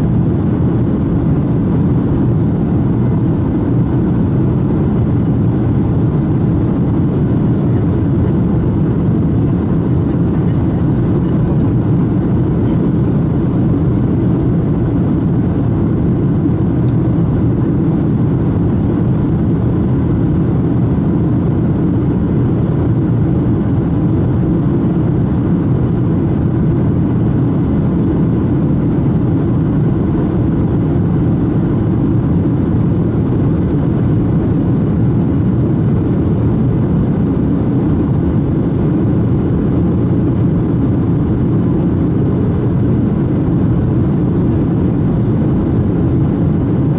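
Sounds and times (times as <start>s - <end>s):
airliner cabin engine drone: 0.0s - 46.9s.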